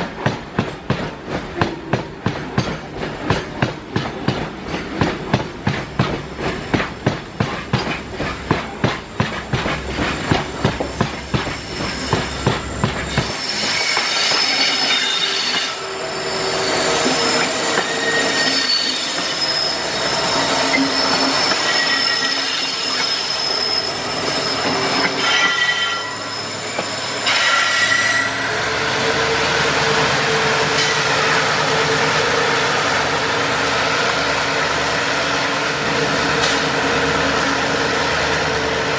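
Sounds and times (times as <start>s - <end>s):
train wheels clickety-clack: 0.0s - 15.8s, 16.9s - 23.4s, 24.2s - 28.5s, 29.5s - 33.0s, 36.2s - 37.0s
wheels squealing on rails: 6.3s - 38.9s.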